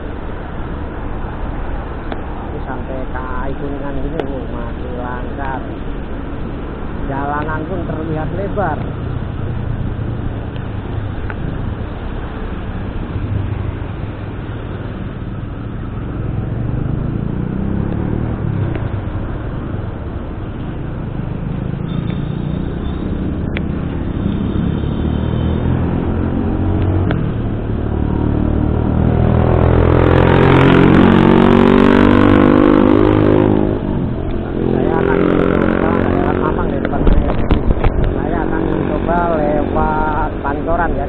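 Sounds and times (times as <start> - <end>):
motor vehicle engine: 0.0 - 41.0
road noise: 0.0 - 41.0
engine accelerating loudly: 15.7 - 41.0.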